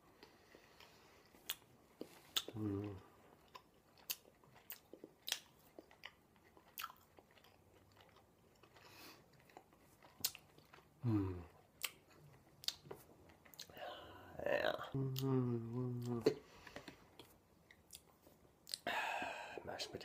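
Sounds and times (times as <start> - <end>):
chewing with wet smacking: 0.2 - 13.8
person humming: 2.5 - 3.1, 11.0 - 11.5, 14.8 - 16.4.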